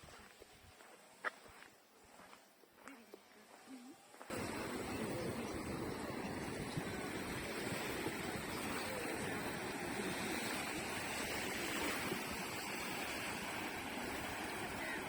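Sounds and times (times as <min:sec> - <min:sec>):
sea surf washing on shore: 0:04.3 - 0:15.0.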